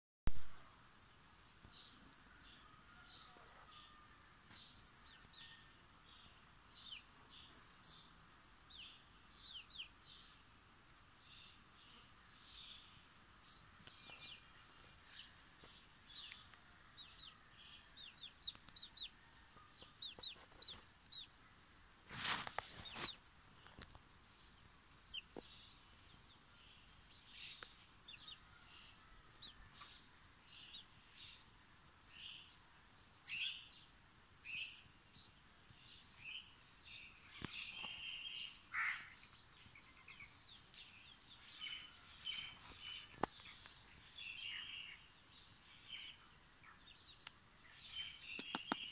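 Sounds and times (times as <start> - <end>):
chick peeping: 8.7 - 10.0, 13.7 - 21.4, 22.1 - 24.0, 24.9 - 31.0, 48.1 - 48.9.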